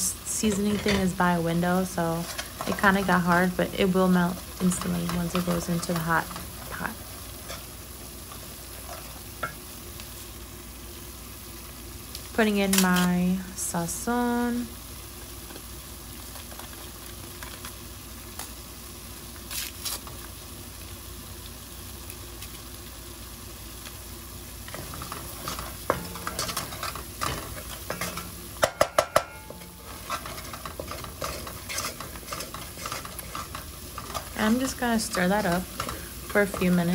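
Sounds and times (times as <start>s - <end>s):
seasonings sizzling in a pot: 0.0s - 36.9s
spoon scraping and stirring: 4.3s - 9.2s, 24.7s - 36.9s.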